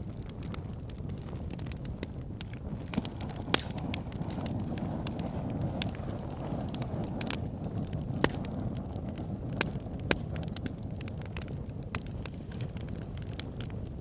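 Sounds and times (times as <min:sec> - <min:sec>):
fire crackling and popping: 0:00.0 - 0:14.0
fire rumbling: 0:00.0 - 0:14.0.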